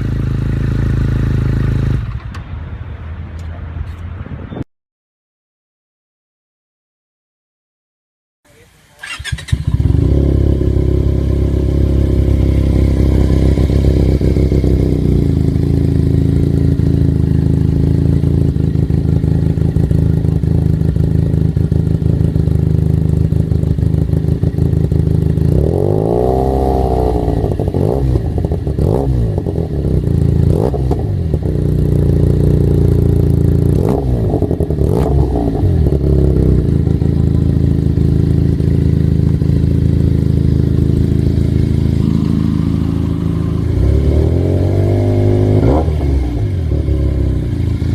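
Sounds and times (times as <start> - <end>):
motorcycle engine idling: 0.0 - 2.2, 8.5 - 25.9, 27.2 - 45.5
motorcycle engine revving: 0.0 - 2.3, 9.0 - 47.9
motorcycle engine starting: 8.9 - 47.9.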